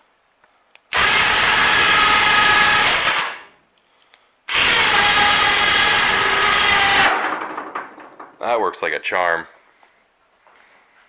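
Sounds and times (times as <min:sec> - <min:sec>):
electric winch motor running: 0:01.0 - 0:03.4, 0:04.5 - 0:07.2.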